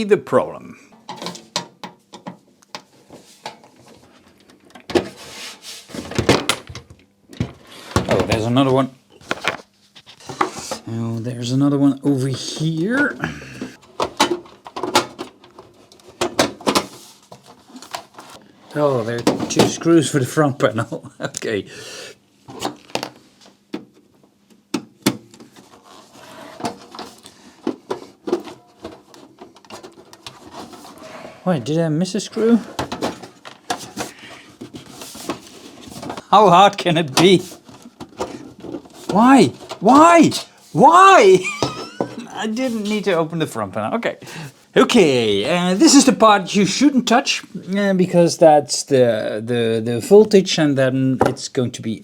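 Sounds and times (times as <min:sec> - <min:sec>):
scraping and rubbing: 0:05.1 - 0:06.0, 0:28.1 - 0:31.5.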